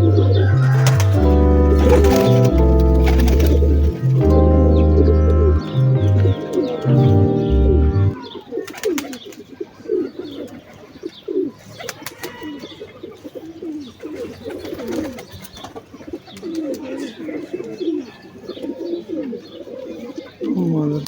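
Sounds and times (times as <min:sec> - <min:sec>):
pigeons cooing: 0:00.0 - 0:10.7, 0:11.3 - 0:21.0.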